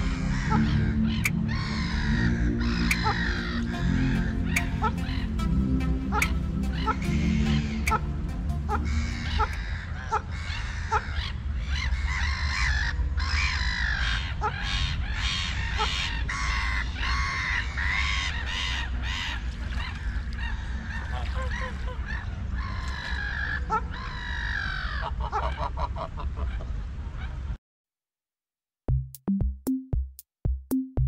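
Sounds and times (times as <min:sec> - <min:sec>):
steady low rumble: 0:00.0 - 0:12.4
waterfowl honking: 0:00.0 - 0:27.4.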